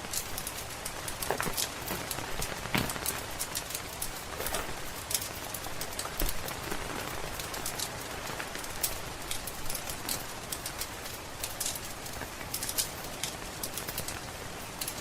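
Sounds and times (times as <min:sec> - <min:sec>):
steady rain hissing: 0:00.0 - 0:15.0
wood fire crackling: 0:00.0 - 0:15.0.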